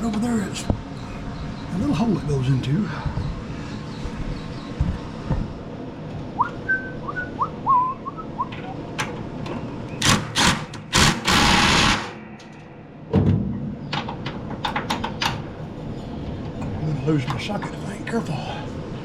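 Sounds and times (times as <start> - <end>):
bird chirping: 0.0 - 5.5.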